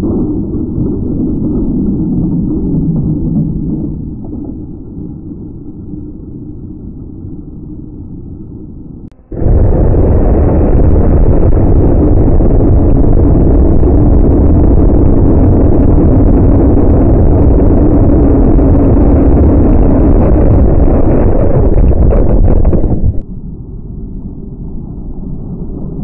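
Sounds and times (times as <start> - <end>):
heavy engine rumble: 9.1 - 23.2.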